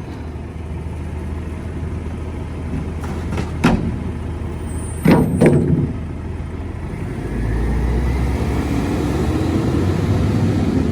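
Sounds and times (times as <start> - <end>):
diesel engine running: 0.0 - 10.9.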